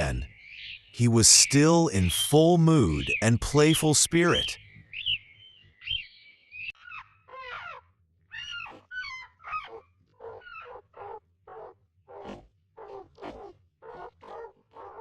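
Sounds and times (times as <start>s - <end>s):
baby monkey crying: 6.8s - 11.6s.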